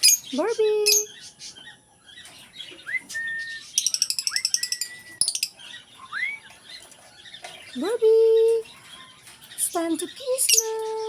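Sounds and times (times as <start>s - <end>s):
pet bird whistling: 2.8s - 6.5s.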